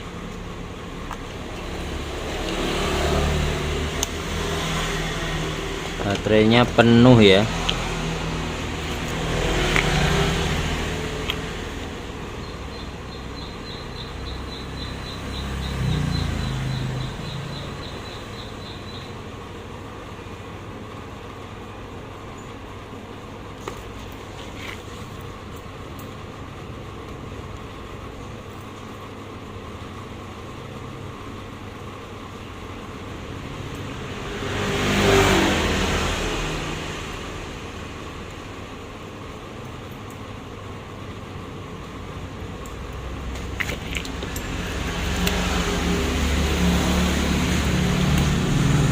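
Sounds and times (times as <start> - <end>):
engine rising in pitch: 0.0 - 20.6, 32.9 - 38.4, 42.9 - 48.9
passing road traffic: 0.0 - 26.6, 31.0 - 39.3, 41.4 - 48.9
steady background hum: 0.0 - 34.4, 37.0 - 48.9
vehicle passing by: 0.6 - 20.5, 33.1 - 38.6, 42.9 - 48.9.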